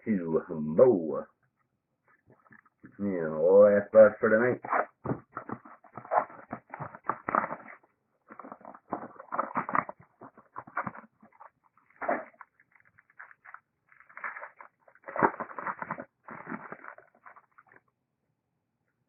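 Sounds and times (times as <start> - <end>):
rustling and crinkling of wrapping: 4.7 - 17.9.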